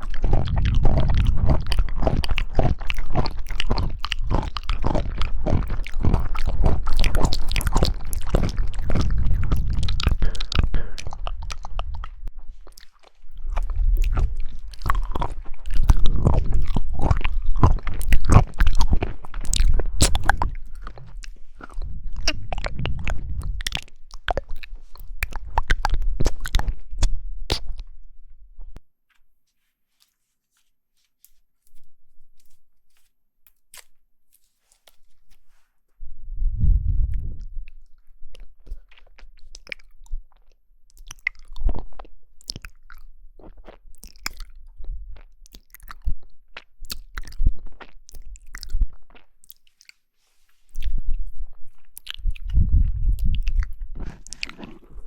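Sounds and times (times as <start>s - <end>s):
chewing and crunching jelly: 0.0s - 28.8s, 31.2s - 35.6s, 36.7s - 55.0s
faint mouth sounds: 0.0s - 28.8s, 36.2s - 55.0s
low rumble: 0.1s - 12.6s, 13.3s - 28.8s, 36.0s - 37.8s.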